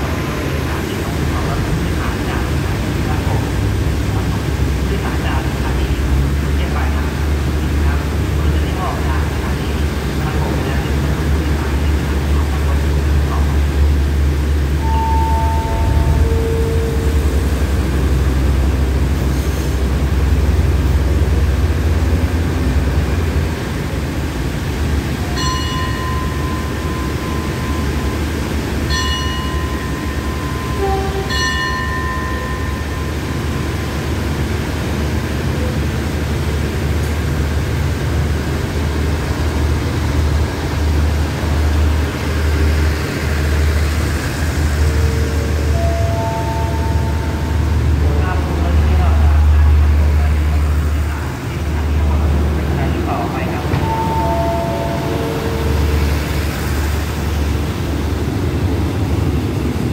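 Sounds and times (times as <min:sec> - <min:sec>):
train engine rumble: 0:00.0 - 0:59.9
train carriages rolling: 0:07.2 - 0:59.9
high-pitched signal tones: 0:14.8 - 0:17.7, 0:53.7 - 0:56.2.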